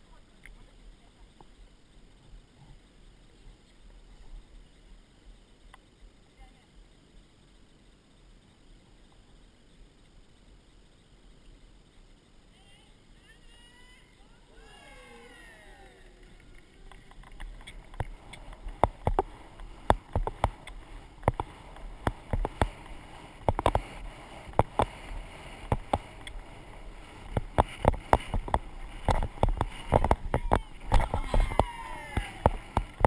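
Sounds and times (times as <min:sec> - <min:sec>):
horse hoofbeats: 0:16.3 - 0:33.0.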